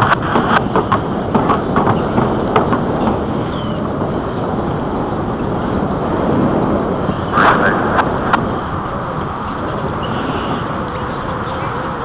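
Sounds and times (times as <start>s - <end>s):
bicycle rolling on pavement: 0.0s - 12.0s
wind rushing: 0.0s - 12.0s.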